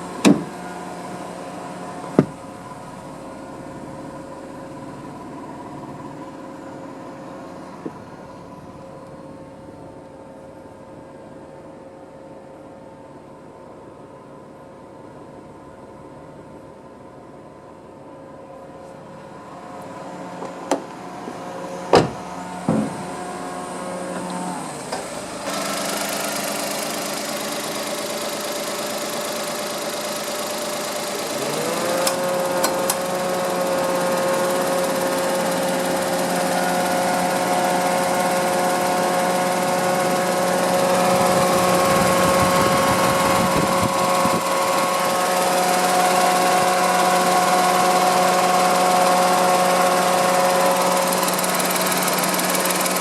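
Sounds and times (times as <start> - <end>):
car engine running: 0.0 - 10.1, 19.3 - 53.0.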